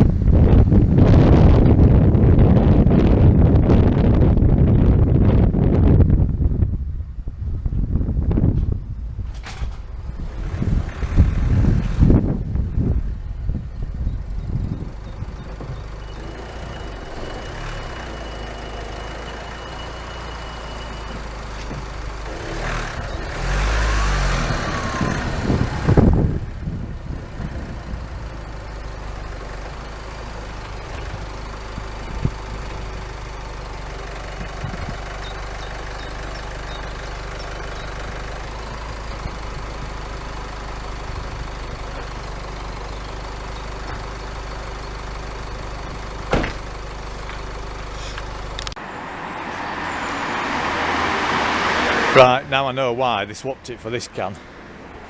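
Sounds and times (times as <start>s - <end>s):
engine idling: 8.7s - 23.8s, 24.6s - 48.9s.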